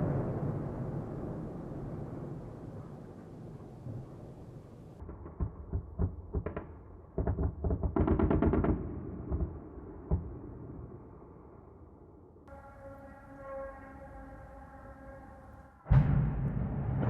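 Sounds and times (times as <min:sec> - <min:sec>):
explosions bangs and booms: 0:00.0 - 0:10.7, 0:15.9 - 0:17.0.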